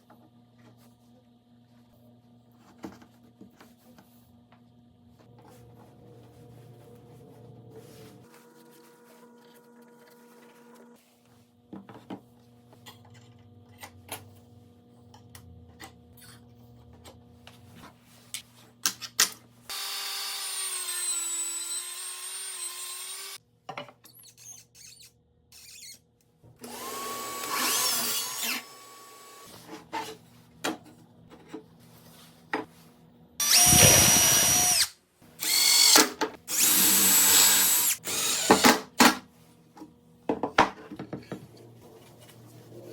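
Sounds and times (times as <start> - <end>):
power drill whining: 19.7 - 23.4, 26.6 - 29.5, 33.4 - 38.7.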